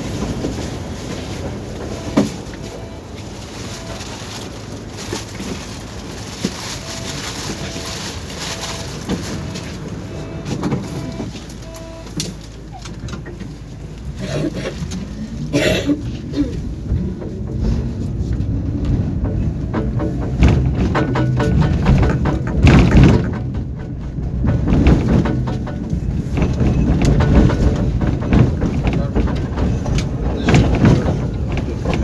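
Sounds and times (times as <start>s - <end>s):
knocks and rattles: 0.0s - 32.0s
tram running: 0.0s - 32.0s
short beeps: 2.0s - 3.0s, 8.6s - 12.2s.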